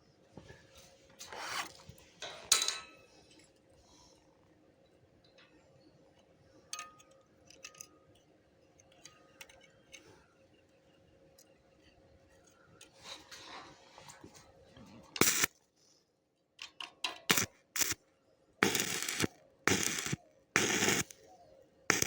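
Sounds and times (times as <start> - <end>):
faint metallic clicks and clinks: 4.8 - 13.0.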